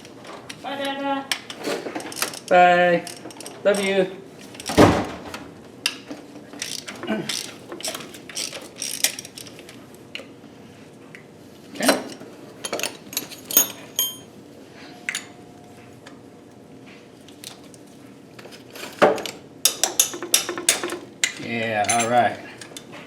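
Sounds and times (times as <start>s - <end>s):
metal hand tools clinking: 12.6s - 14.3s, 21.8s - 22.4s.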